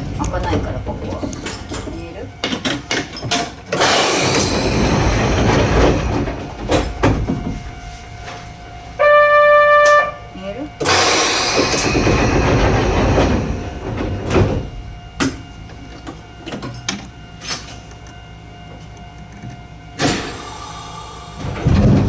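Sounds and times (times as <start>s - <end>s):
train car electrical hum: 0.0s - 22.0s
knocks and clunks: 0.4s - 7.8s, 10.8s - 17.1s, 21.4s - 22.0s.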